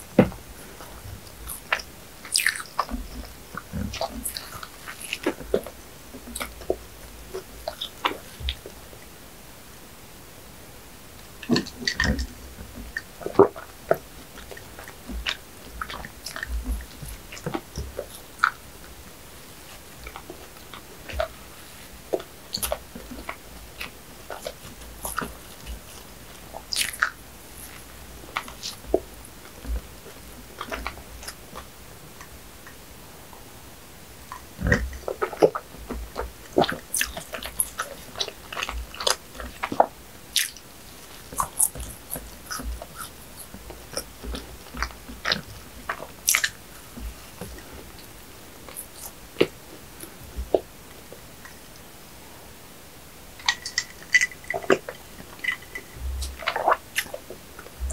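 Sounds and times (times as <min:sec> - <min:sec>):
biting and chewing bread: 0:00.0 - 0:08.8, 0:11.4 - 0:32.4, 0:34.3 - 0:51.0, 0:53.4 - 0:57.9
wet mouth clicks and smacks: 0:22.2 - 0:31.6, 0:34.6 - 0:47.6, 0:53.4 - 0:57.9.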